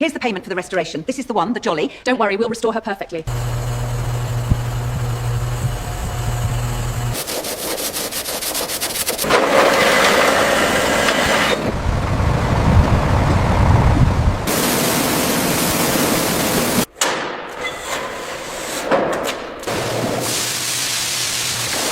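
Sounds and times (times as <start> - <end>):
low rumble: 3.3 - 7.2, 11.6 - 14.5
steady low hum: 3.3 - 7.2
rough rasping noise: 3.3 - 14.1.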